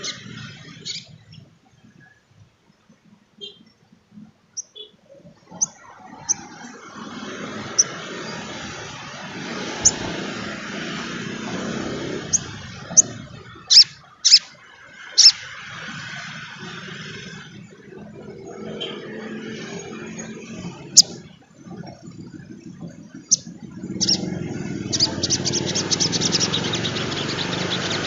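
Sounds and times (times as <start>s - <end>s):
rushing background noise: 0.0s - 28.0s
bird chirping: 4.6s - 6.5s, 9.7s - 10.1s, 12.2s - 14.5s, 15.1s - 15.5s, 23.2s - 28.0s.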